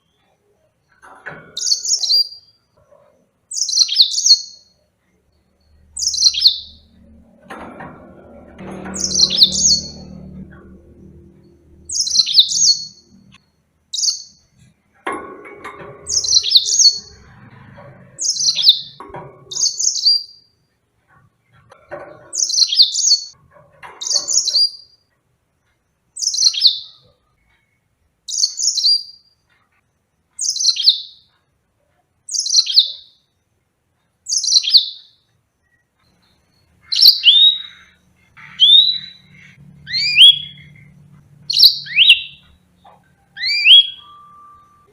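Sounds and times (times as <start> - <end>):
canary calling: 5.8 - 7.0, 8.6 - 14.4, 16.1 - 17.3, 18.2 - 20.4, 30.4 - 31.3, 32.3 - 33.2, 34.3 - 35.1, 36.7 - 44.9.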